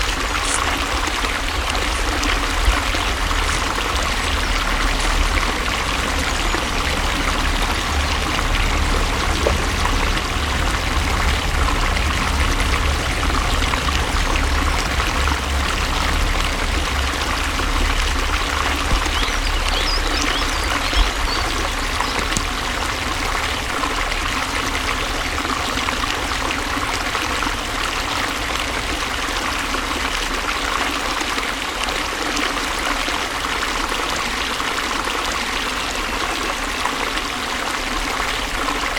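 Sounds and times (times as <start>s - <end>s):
deep low rumble: 0.0s - 30.5s
stream trickling: 0.0s - 38.9s.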